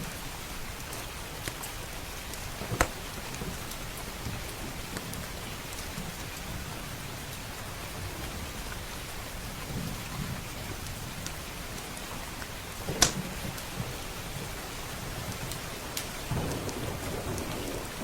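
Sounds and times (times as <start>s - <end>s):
steady rain: 0.0s - 18.0s
small crackles: 0.7s - 6.5s, 9.6s - 18.0s
thunder rumbles: 12.7s - 18.0s.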